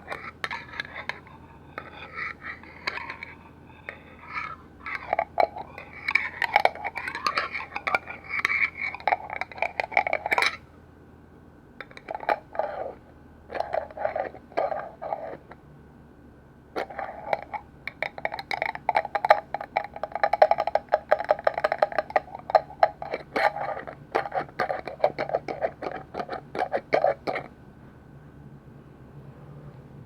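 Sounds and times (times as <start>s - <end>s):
fingernails tapping on lids: 0.0s - 10.6s, 11.8s - 12.7s, 16.8s - 27.5s.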